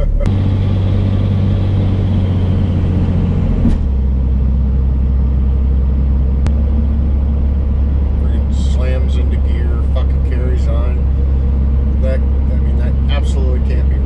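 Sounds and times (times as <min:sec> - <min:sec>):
vehicle engine droning: 0:00.0 - 0:14.0
person speaking: 0:08.2 - 0:11.1, 0:12.0 - 0:14.0.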